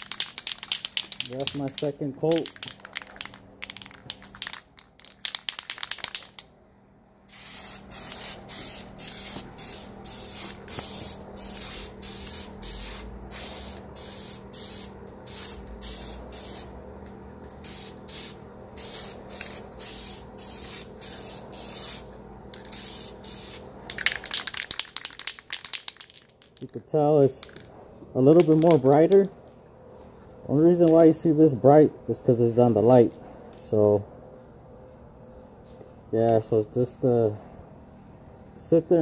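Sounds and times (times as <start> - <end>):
spray paint can hissing: 0.0 - 6.4, 7.3 - 16.7, 17.6 - 26.4.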